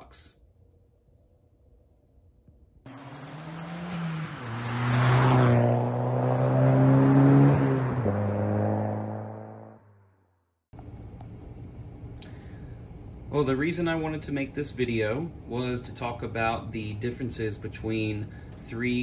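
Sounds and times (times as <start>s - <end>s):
car engine running: 2.9s - 9.7s.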